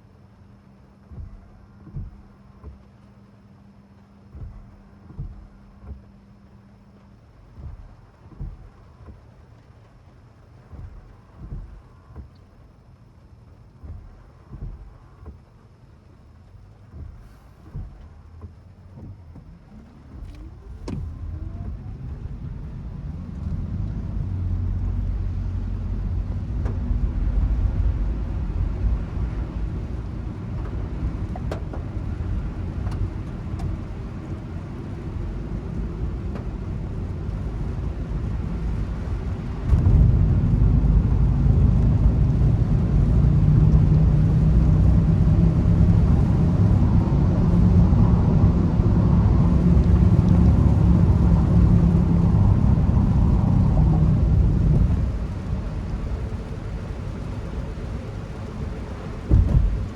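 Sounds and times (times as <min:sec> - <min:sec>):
car engine rumble: 0:00.0 - 0:59.9
road noise: 0:16.4 - 0:59.9.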